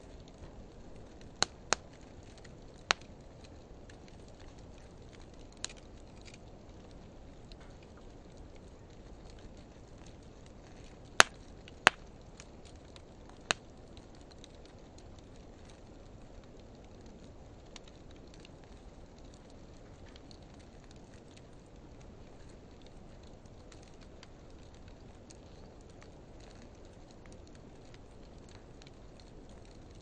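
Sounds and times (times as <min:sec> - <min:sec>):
wood fire burning: 0:00.0 - 0:30.0
sharp pops from burning wood: 0:00.4 - 0:06.6, 0:09.8 - 0:15.0.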